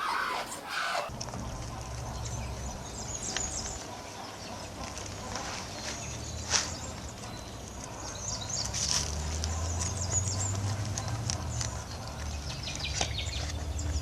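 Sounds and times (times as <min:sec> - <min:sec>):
high animal chirps and calls: 0:00.0 - 0:01.1.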